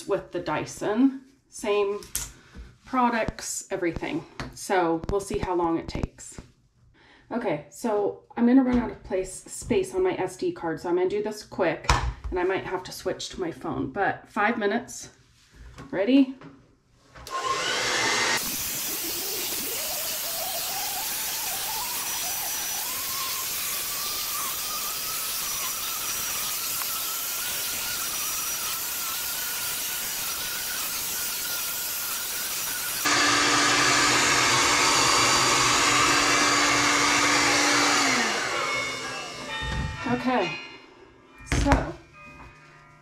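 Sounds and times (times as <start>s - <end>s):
hair dryer blowing air: 17.3s - 40.3s.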